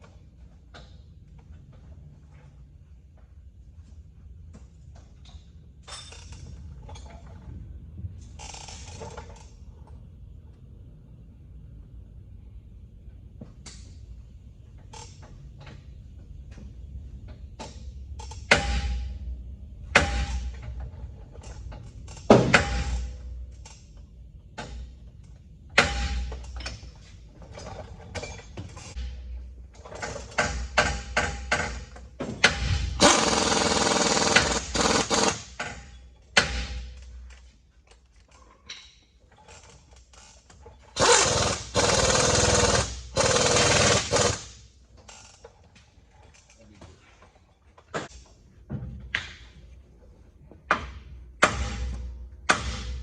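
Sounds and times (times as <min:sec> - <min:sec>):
pneumatic tool running: 0:32.4 - 0:35.7, 0:41.0 - 0:44.6.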